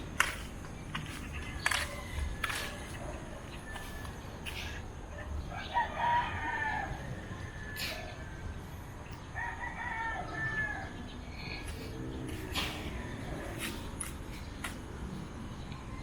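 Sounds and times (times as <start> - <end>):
footsteps scuffing: 0.2 - 3.0, 13.5 - 14.8
rooster crowing: 5.5 - 8.5, 9.3 - 11.0.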